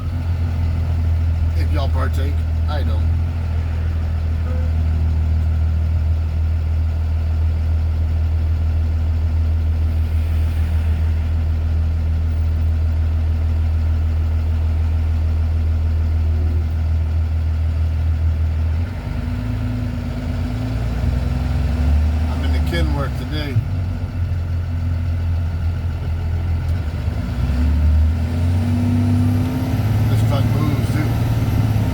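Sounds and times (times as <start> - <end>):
truck engine drone: 0.0 - 31.9.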